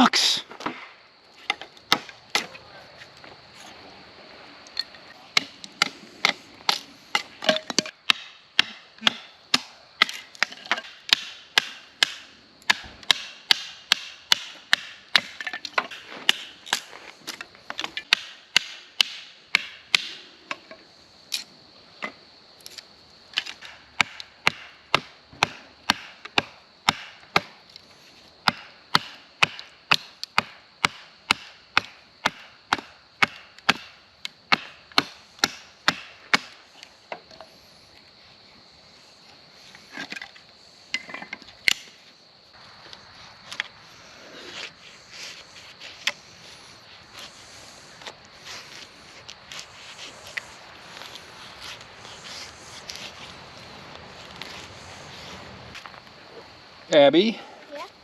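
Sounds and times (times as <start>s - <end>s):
wood chopping strikes: 0.5s - 2.6s, 5.3s - 16.9s, 17.7s - 20.6s, 23.4s - 27.6s, 28.4s - 37.4s, 41.0s - 42.0s.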